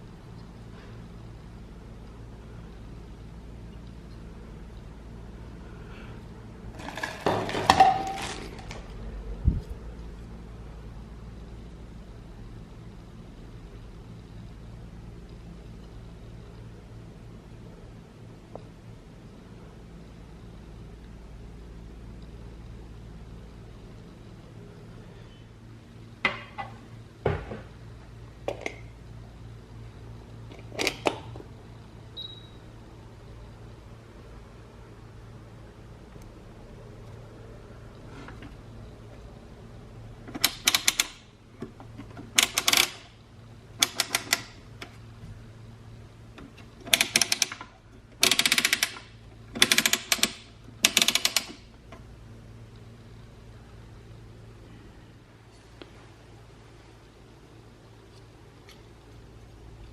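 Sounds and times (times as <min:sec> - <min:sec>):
steady low hum: 0:00.0 - 0:59.9
hard parts clicking and knocking: 0:40.2 - 0:43.1, 0:43.8 - 0:45.0, 0:46.4 - 0:52.0.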